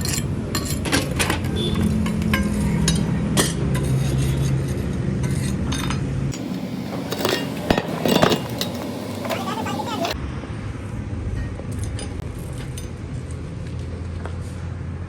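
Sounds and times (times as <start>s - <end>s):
metal parts clinking: 0.0s - 9.4s
workshop machine humming: 6.3s - 10.2s.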